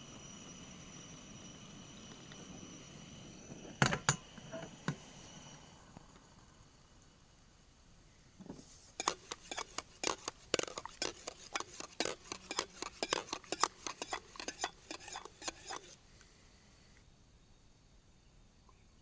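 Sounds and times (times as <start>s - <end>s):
metal cutlery clinking on dishes: 9.0s - 15.9s.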